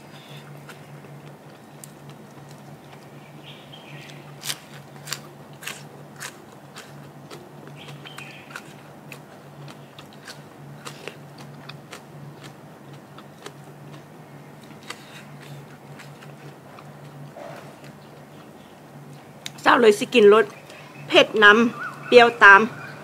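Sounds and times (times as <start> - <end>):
person chewing crunchy food: 4.0 - 19.6.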